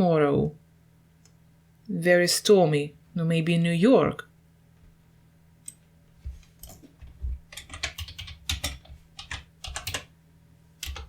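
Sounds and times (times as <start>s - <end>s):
typing on computer keyboard: 7.5s - 10.1s, 10.8s - 11.0s.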